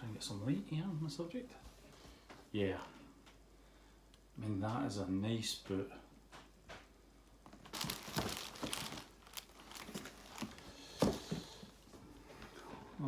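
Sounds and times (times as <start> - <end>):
packaging crinkling and rustling: 7.4 - 11.6.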